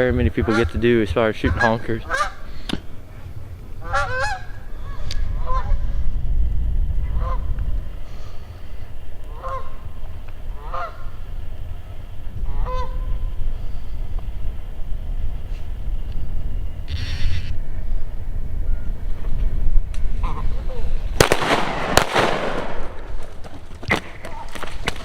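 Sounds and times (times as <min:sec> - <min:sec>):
steady low rumble: 0:00.0 - 0:25.0
geese honking: 0:00.2 - 0:02.7, 0:03.7 - 0:06.0, 0:07.0 - 0:14.0, 0:20.1 - 0:21.0.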